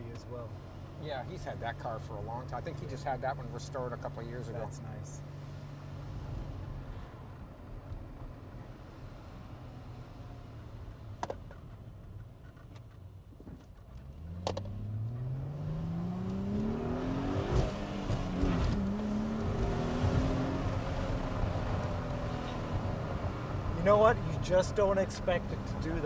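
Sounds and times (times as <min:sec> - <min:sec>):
car engine accelerating: 0:13.9 - 0:26.0.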